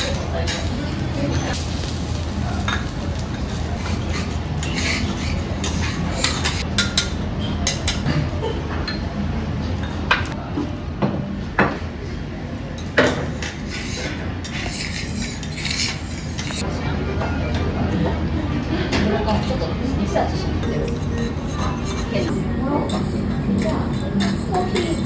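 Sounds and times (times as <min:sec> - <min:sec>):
metal utensils clinking on dishes: 0:00.0 - 0:01.6, 0:02.4 - 0:09.2, 0:12.8 - 0:18.2, 0:18.9 - 0:25.0.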